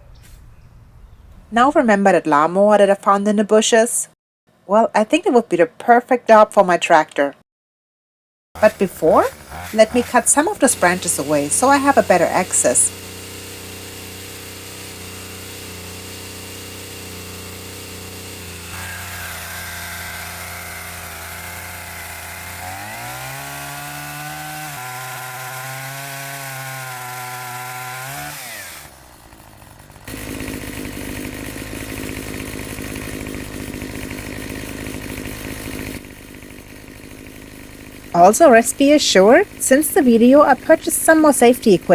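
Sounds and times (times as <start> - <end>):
chainsaw cutting branches: 8.6 - 41.9.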